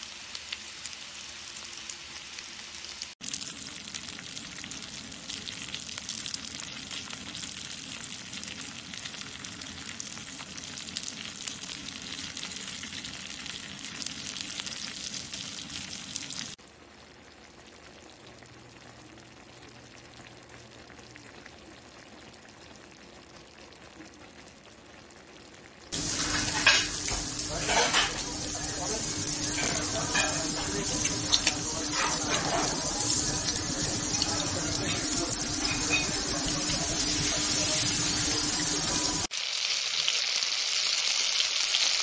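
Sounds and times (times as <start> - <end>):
bacon sizzling on griddle: 0.0 - 16.6, 25.9 - 42.0
fish frying in oil: 0.0 - 42.0.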